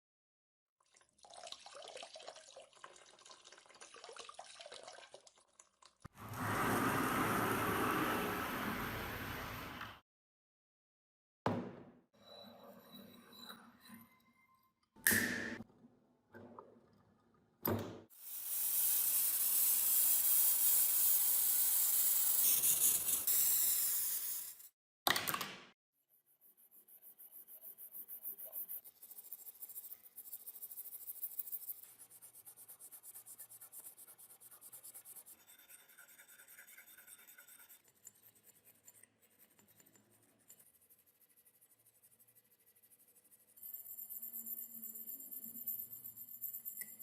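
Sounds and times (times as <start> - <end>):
rubbing on a work piece: 27.1 - 43.0.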